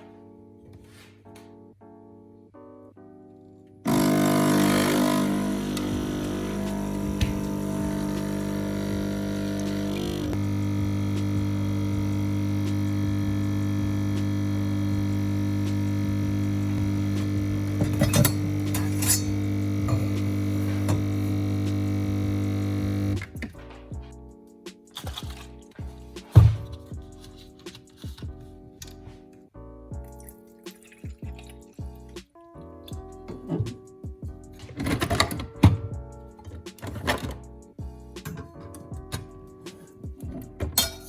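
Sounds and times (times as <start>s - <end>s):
kitchen appliance humming: 3.9s - 23.4s.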